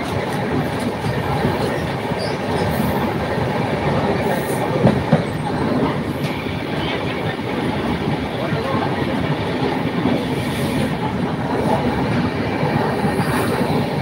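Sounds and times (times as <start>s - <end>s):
train rumbling and rattling: 0.0s - 14.0s.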